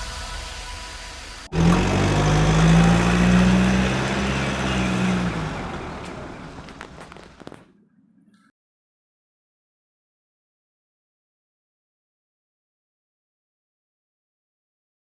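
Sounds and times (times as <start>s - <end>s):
car engine running: 1.4s - 7.6s.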